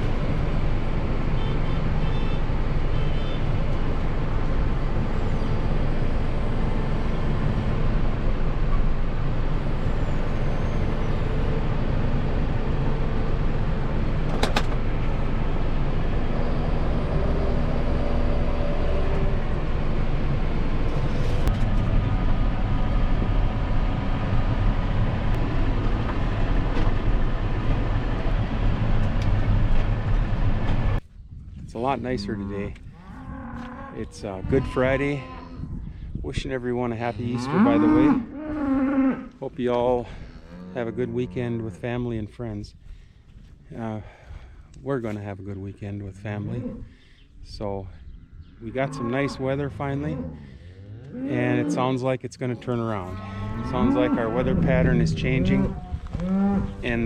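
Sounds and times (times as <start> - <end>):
diesel engine under load: 0.0 - 31.0.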